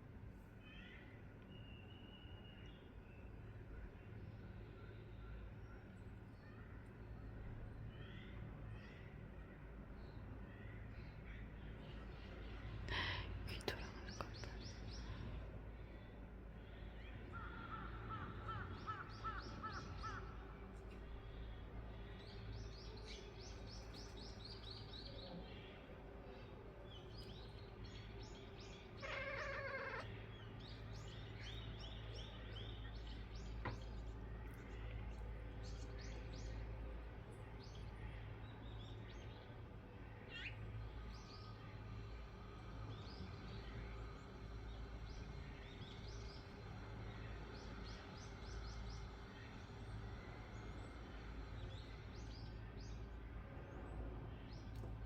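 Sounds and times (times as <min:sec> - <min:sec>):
low background hum: 0:00.0 - 0:55.0
birds chirping and trilling: 0:00.6 - 0:55.0.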